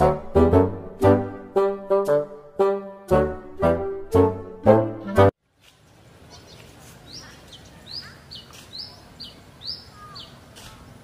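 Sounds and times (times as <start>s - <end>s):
faint outdoor background noise: 5.4s - 11.0s.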